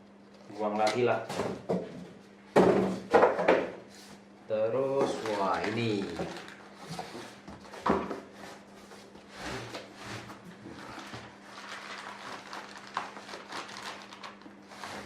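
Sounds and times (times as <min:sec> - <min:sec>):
cardboard rustling and scraping: 0:05.1 - 0:13.3.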